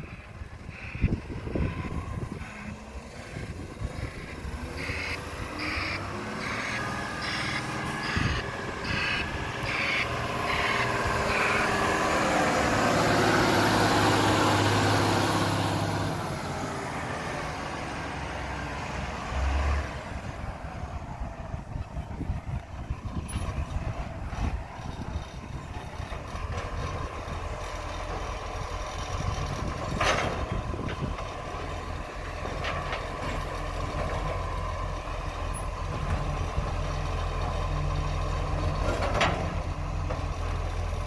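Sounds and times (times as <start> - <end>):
truck engine revving: 0.0 - 41.0
truck warning beeper: 4.8 - 11.7.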